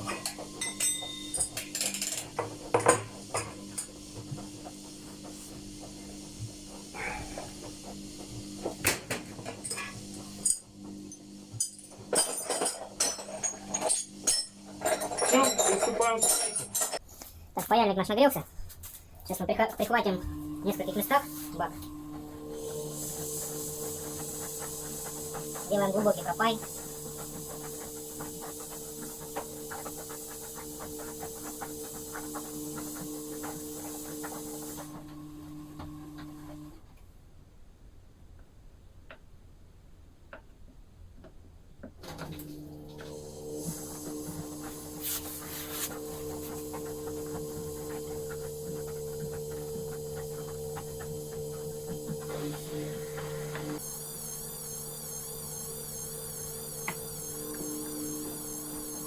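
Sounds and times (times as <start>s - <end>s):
soldering iron crackling and hissing: 18.7s - 35.0s, 43.1s - 59.0s
steady hum: 19.1s - 35.9s.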